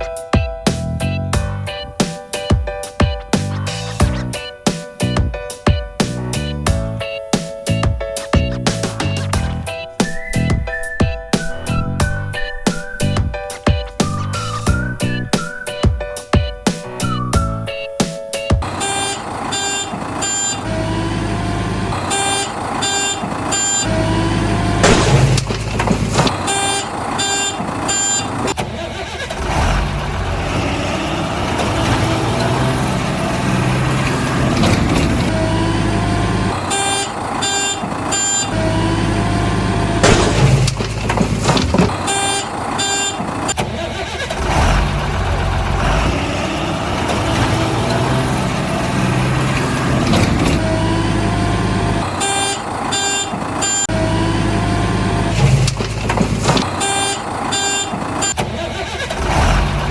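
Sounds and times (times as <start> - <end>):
diesel engine running: 0.7 - 2.0, 3.4 - 5.3, 7.7 - 13.4, 18.6 - 59.9
reversing alarm beeping: 18.6 - 21.1, 22.0 - 24.4, 36.5 - 39.2, 52.1 - 54.5.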